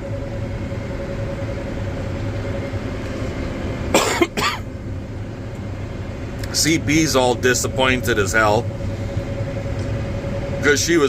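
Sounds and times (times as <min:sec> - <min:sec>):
swather whining: 0:00.0 - 0:11.0
man coughing: 0:03.9 - 0:04.7.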